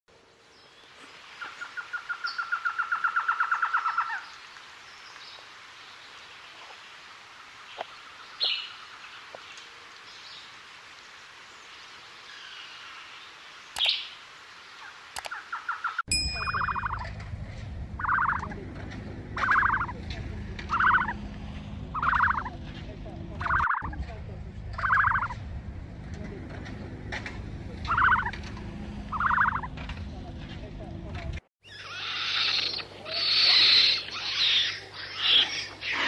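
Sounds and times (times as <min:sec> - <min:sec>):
sharp clicks: 0:15.2 - 0:15.4
bird trill: 0:15.3 - 0:17.2, 0:18.0 - 0:18.6, 0:19.4 - 0:20.0, 0:20.7 - 0:21.2, 0:21.9 - 0:22.5, 0:23.4 - 0:24.0, 0:24.8 - 0:25.4, 0:27.9 - 0:28.4, 0:29.1 - 0:29.7, 0:31.6 - 0:36.0.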